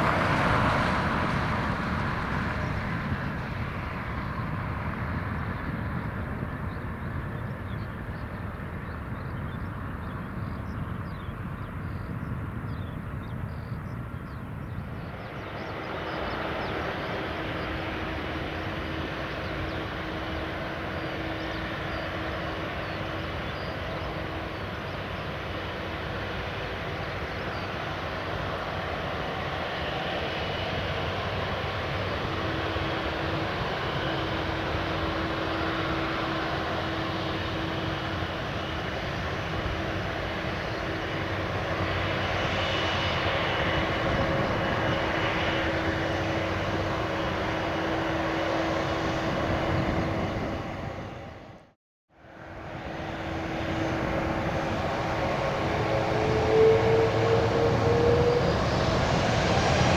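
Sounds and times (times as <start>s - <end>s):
jet engines rumbling: 0.0s - 59.9s
steady engine hum: 0.0s - 59.9s.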